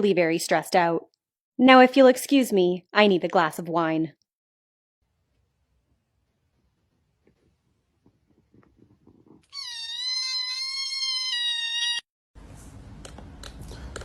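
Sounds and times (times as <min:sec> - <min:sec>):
cat meowing: 0:09.4 - 0:12.0.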